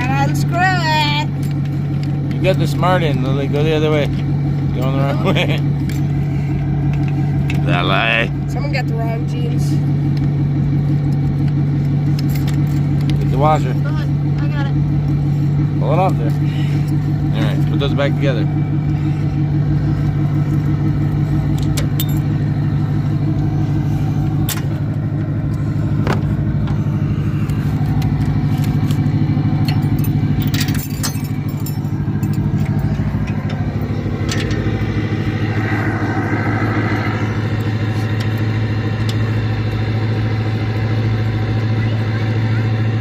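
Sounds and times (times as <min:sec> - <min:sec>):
diesel truck engine idling: 0:00.0 - 0:43.0
metal clanks and clicks: 0:11.0 - 0:13.3, 0:21.5 - 0:22.4, 0:27.4 - 0:34.9.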